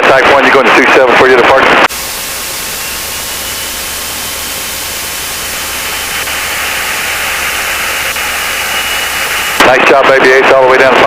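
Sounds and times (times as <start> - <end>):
radio static hiss: 1.7 - 10.6
faint low drone: 1.9 - 9.7.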